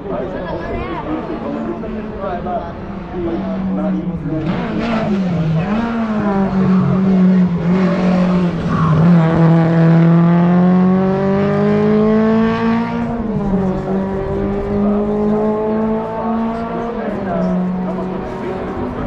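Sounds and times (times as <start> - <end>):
racing car engine at full throttle: 0.0 - 19.0.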